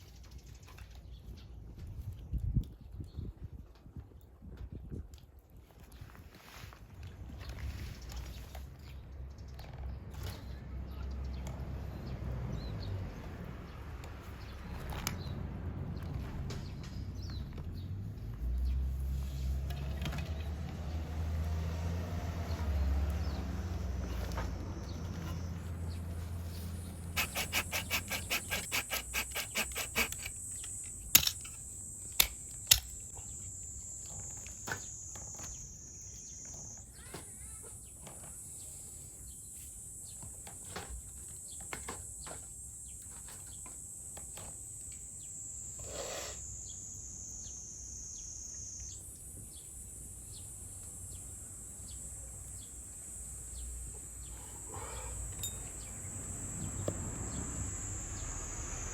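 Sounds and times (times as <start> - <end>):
insects droning: 22.0 - 58.9.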